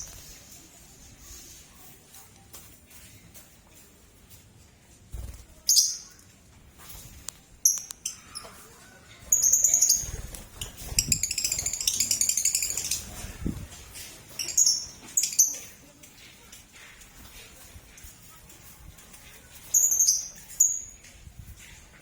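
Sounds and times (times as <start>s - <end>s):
lovebirds chirping shrilly: 9.4s - 13.2s
wings fluttering: 9.4s - 15.4s.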